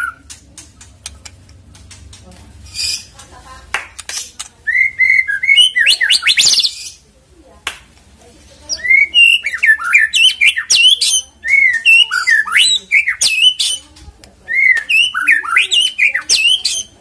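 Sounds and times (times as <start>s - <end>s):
songbird whistling song: 0.0s - 0.4s, 4.6s - 7.0s, 8.7s - 13.9s, 14.5s - 17.0s.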